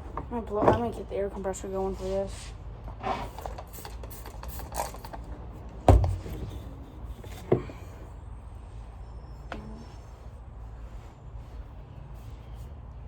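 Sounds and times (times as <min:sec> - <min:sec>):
heavy thump: 0:05.9 - 0:06.6.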